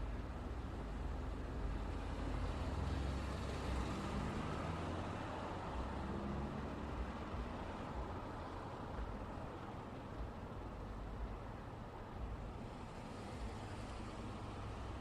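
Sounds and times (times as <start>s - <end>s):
road traffic rumble: 0.0s - 15.0s
vehicle passing by: 1.6s - 8.6s.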